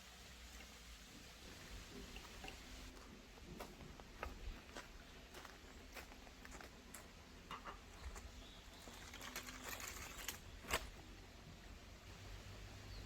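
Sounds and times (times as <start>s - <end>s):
birds chirping faintly: 3.6s - 13.0s.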